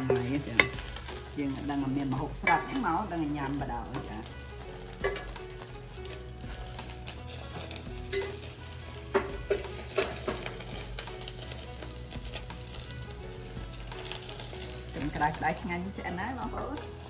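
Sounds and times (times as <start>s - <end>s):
food sizzling in a pan: 0.0s - 17.0s
utensil knocking against a pan: 9.1s - 10.6s.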